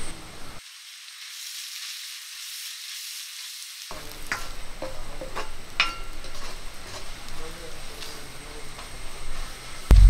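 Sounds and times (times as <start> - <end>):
food sizzling in hot oil: 0.0 - 10.0
metal spatula scraping a wok: 3.9 - 9.6.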